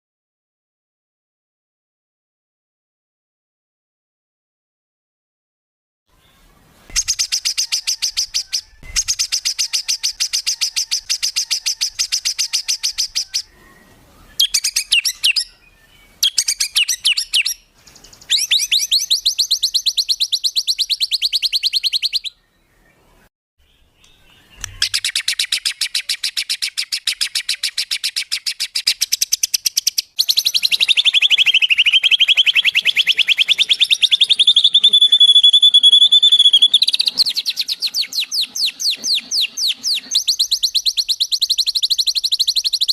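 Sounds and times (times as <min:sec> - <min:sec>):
songbird rapid trilling: 0:06.9 - 0:13.5, 0:14.4 - 0:15.5, 0:16.2 - 0:22.3, 0:24.1 - 0:42.9.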